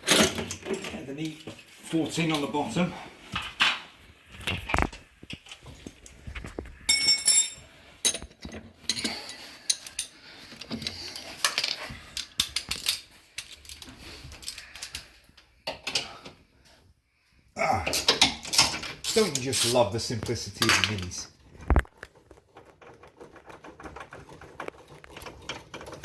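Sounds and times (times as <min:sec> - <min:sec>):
ringing metal clink: 0:06.9 - 0:08.2
metal hand tools clinking: 0:06.9 - 0:10.2, 0:18.5 - 0:21.3.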